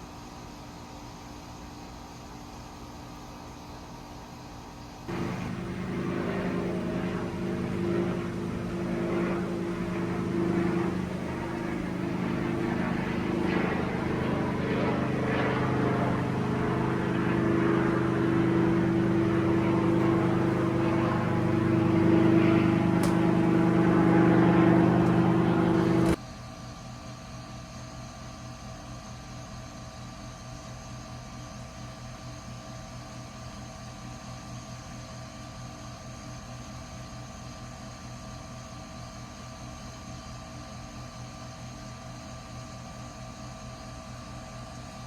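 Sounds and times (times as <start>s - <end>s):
engine humming steadily: 5.1s - 26.2s.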